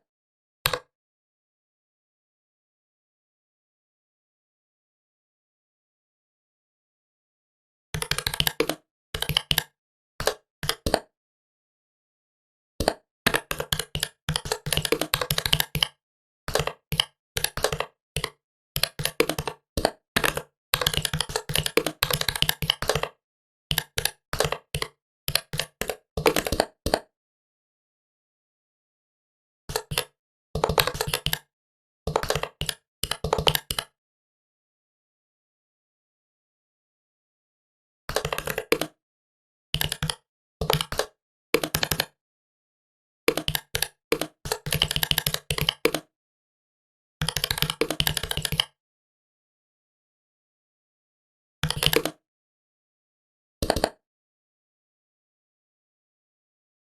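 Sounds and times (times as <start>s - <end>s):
laptop keyboard typing: 8.0s - 9.6s, 12.8s - 27.0s, 29.7s - 31.5s, 32.1s - 33.9s, 38.1s - 39.0s, 39.8s - 42.1s, 43.3s - 46.1s, 47.2s - 48.8s, 51.6s - 52.2s
keyboard key clicks: 43.3s - 46.1s, 47.2s - 48.6s.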